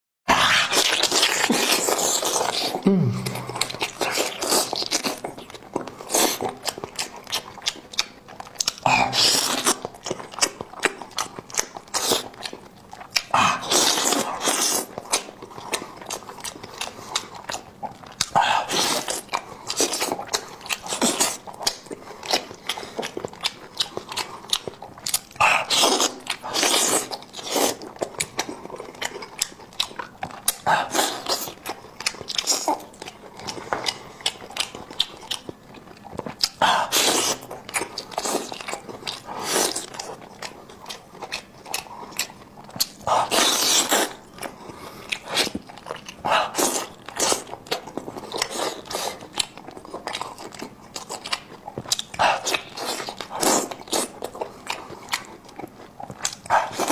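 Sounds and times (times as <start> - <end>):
food being bitten and chewed: 0.3 - 56.9
mouth smacks: 1.7 - 4.8.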